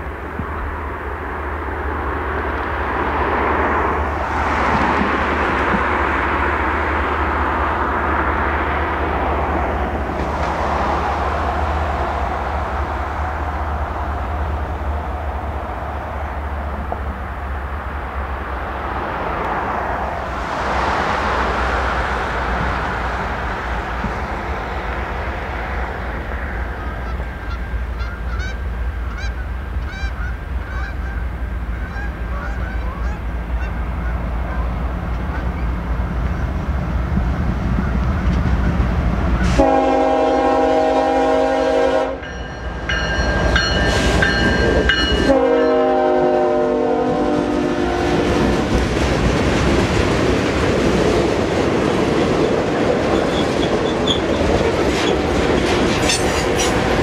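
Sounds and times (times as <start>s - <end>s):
diesel locomotive engine hum: 0.0s - 57.0s
geese honking: 26.8s - 35.6s
train horn blasts: 39.4s - 42.5s, 43.6s - 48.5s
train wheels clacking on rail joints: 48.1s - 57.0s.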